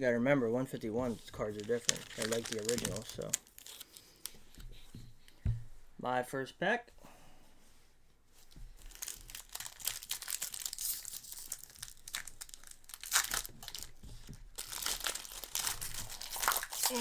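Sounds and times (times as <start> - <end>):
foil wrapper tearing and crinkling: 1.2 - 4.7, 8.8 - 17.0.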